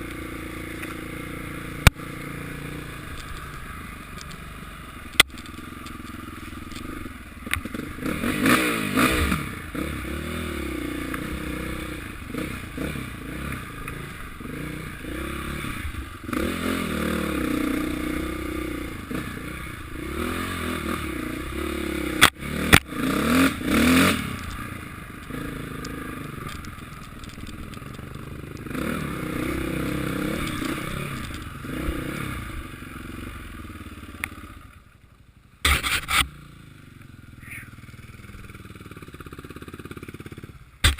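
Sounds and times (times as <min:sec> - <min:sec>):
motocross bikes revving: 0:00.0 - 0:34.1
sharp clicks: 0:05.1 - 0:07.8, 0:25.2 - 0:28.7.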